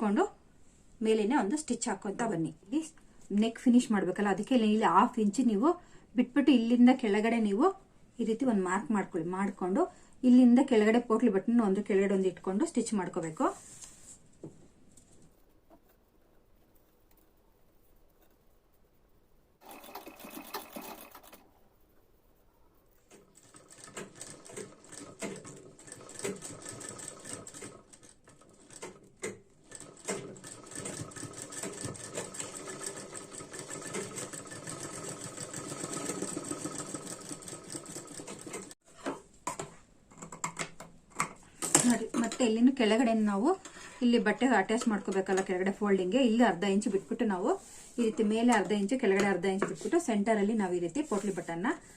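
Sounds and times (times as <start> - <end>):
sewing machine stitching: 19.6 - 21.5, 23.1 - 38.8.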